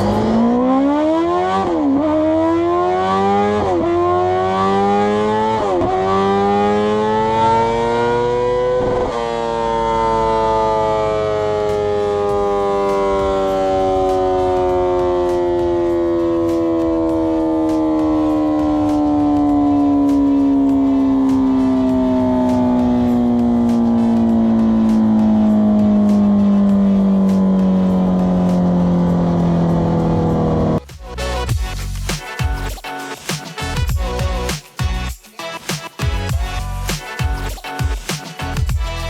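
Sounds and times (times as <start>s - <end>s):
motorcycle engine accelerating: 0.0s - 30.9s.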